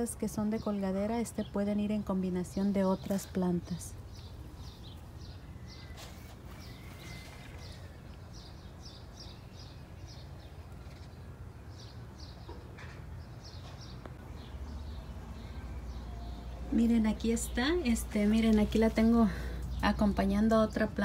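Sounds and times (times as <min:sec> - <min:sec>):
small bird chirping: 0:02.8 - 0:16.6.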